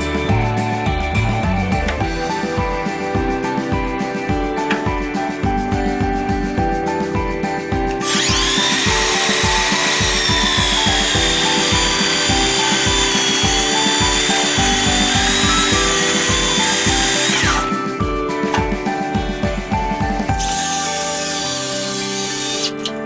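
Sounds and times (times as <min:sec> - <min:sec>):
background music with beat: 0:00.0 - 0:23.0
power saw cutting wood: 0:20.4 - 0:23.0.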